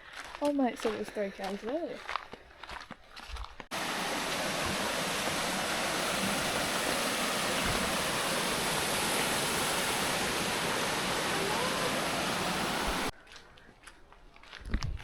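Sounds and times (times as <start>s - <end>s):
waterfall rushing: 3.7s - 13.1s.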